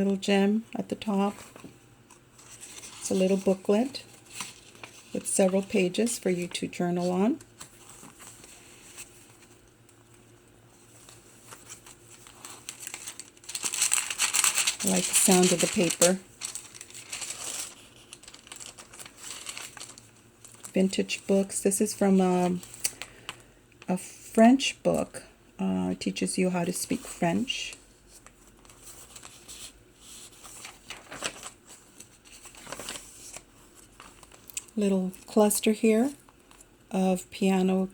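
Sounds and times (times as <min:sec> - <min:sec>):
paper pages rustling and turning: 0:01.0 - 0:21.5, 0:27.9 - 0:35.4, 0:36.0 - 0:36.7.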